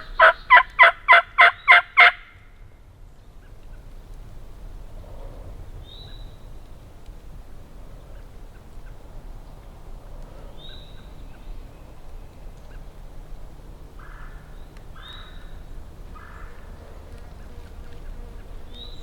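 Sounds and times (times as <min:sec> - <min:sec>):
turkey gobbling: 0:00.0 - 0:02.3.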